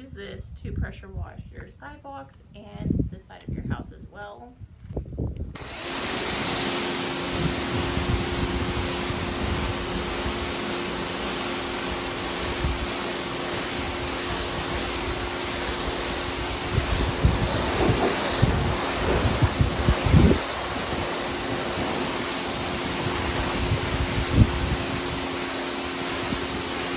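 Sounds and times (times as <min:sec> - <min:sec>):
pressure washer jet hissing: 0:05.6 - 0:26.9
pressure washer motor hum: 0:05.6 - 0:26.9.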